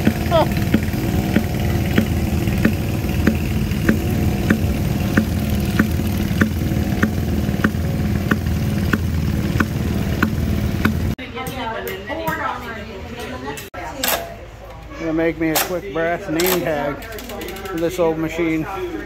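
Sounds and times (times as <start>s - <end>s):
engine clicking: 0.0s - 11.2s
gas engine drone: 0.0s - 11.2s.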